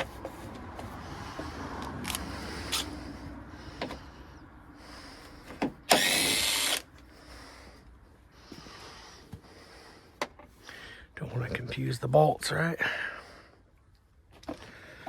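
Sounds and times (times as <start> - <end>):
cordless drill whining: 5.9 - 6.9.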